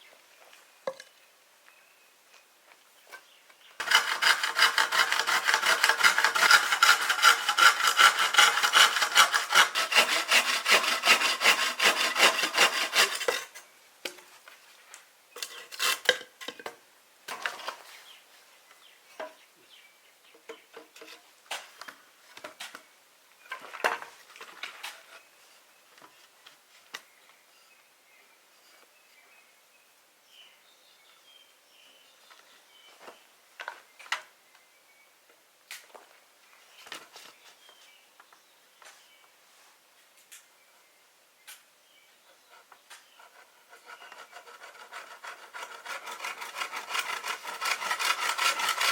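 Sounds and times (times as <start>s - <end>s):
hand saw cutting wood: 3.8s - 13.6s, 15.4s - 16.2s, 42.9s - 48.9s
wood scraping and knocking: 3.8s - 13.6s.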